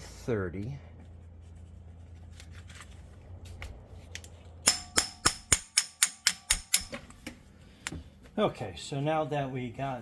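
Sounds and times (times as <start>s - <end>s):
hammer striking impact driver: 4.6s - 7.2s.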